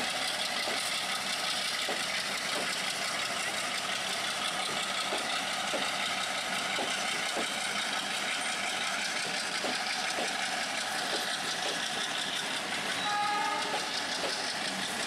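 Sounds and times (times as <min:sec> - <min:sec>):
train coaches rumbling past: 0:00.0 - 0:15.0
wheels clicking over rail joints: 0:00.0 - 0:15.0
short pitched tone: 0:13.0 - 0:13.9.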